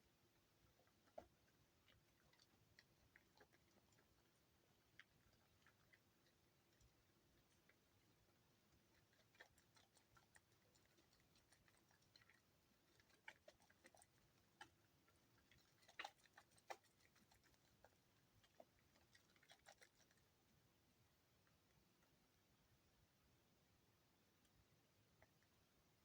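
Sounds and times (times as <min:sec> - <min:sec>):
soap lathering wet clicking: 0:00.9 - 0:20.4.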